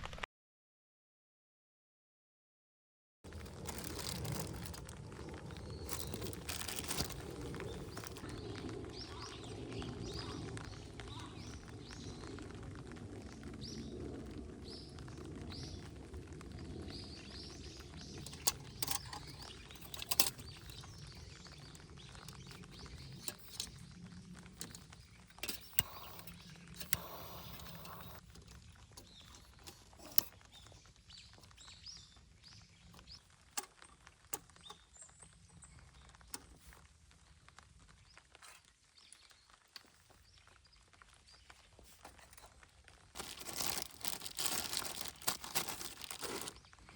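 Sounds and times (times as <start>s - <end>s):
fire crackling and popping: 3.2s - 46.9s
flame rushing: 3.3s - 31.3s
small birds chirping: 3.3s - 42.6s, 43.2s - 46.9s.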